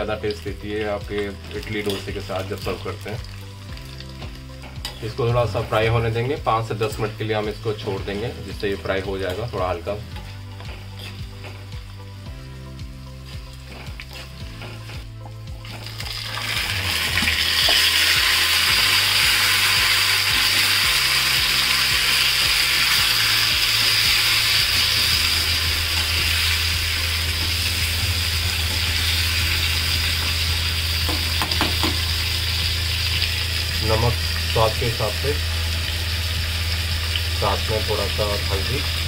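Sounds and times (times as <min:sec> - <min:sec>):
oil sizzling loudly: 0:00.0 - 0:39.0
spatula stirring a pan: 0:10.1 - 0:12.0, 0:13.2 - 0:15.9
spatula tapping metal: 0:31.1 - 0:32.0.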